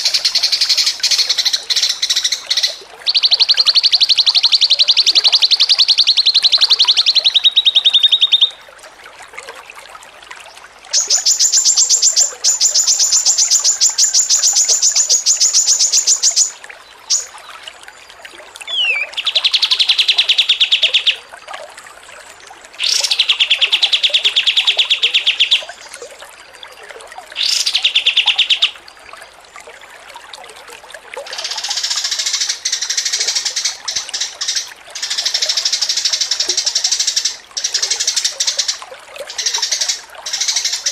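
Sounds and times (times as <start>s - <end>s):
songbird trilling: 0.0s - 8.6s, 11.0s - 17.3s, 18.7s - 21.2s, 22.8s - 25.9s, 27.4s - 28.8s, 31.4s - 40.9s.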